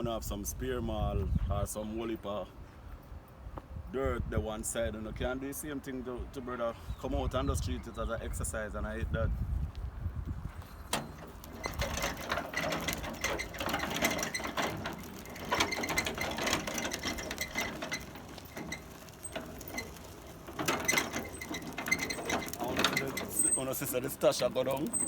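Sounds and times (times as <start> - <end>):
rubble rattling and scraping: 10.4 - 25.0.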